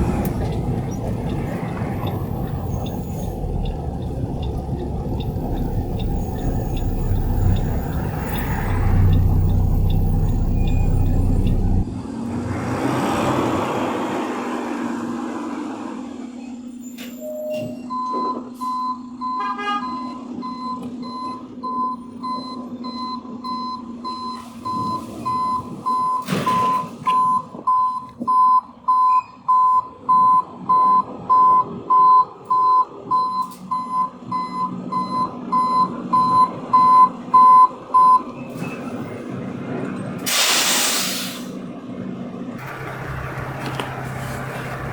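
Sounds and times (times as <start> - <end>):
truck engine running: 0.0 - 12.2, 42.4 - 44.9
reversing alarm beeping: 1.2 - 11.9, 17.2 - 38.3
short loud hiss: 40.3 - 41.6.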